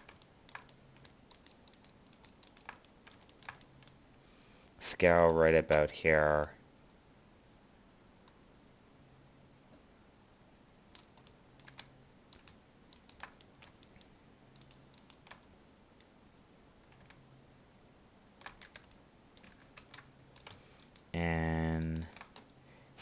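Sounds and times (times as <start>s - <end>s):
faint keyboard keystrokes: 0.0s - 4.0s, 10.9s - 16.1s, 16.8s - 17.2s, 18.4s - 21.1s, 21.7s - 22.8s.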